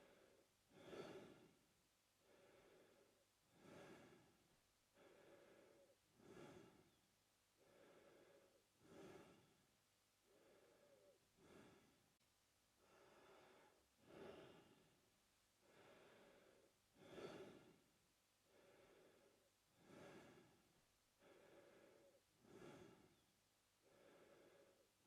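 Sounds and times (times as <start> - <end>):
man breathing through mouth: 0.0 - 1.6, 2.2 - 7.0, 7.6 - 9.6, 10.2 - 12.0, 12.8 - 14.9, 15.6 - 17.8, 18.5 - 20.6, 21.2 - 23.2.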